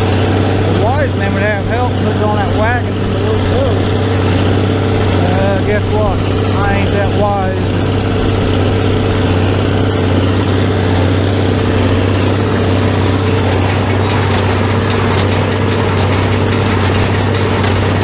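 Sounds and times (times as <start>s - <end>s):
tractor engine running: 0.0s - 18.0s
fast regular clicking: 12.0s - 18.0s.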